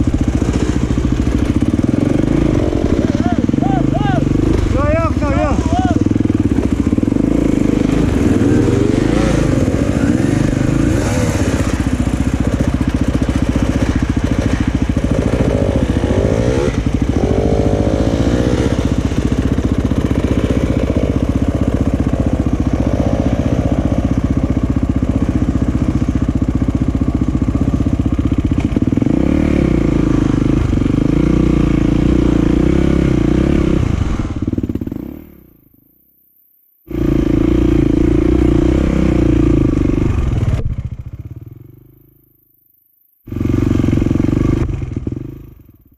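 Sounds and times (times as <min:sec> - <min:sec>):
dirt bike engines revving: 0:00.0 - 0:35.5, 0:36.9 - 0:42.0, 0:43.3 - 0:45.6.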